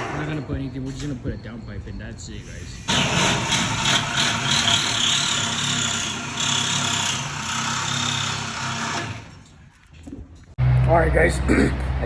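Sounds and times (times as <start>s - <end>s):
power tool whining under load: 2.9s - 9.5s.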